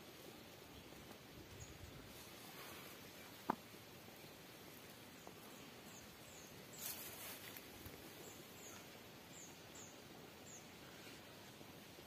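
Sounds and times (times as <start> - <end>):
bird chirping: 5.1 - 7.2, 8.1 - 11.2.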